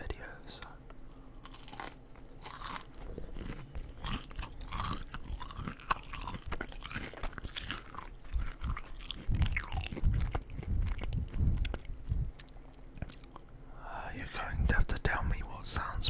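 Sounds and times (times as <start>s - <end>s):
chewing crunchy food: 0.6s - 13.6s.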